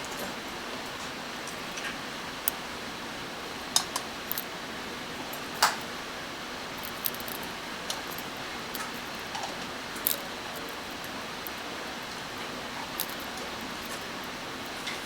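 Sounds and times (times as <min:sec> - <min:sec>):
small metal tools clicking: 0:06.8 - 0:09.1, 0:13.0 - 0:14.0.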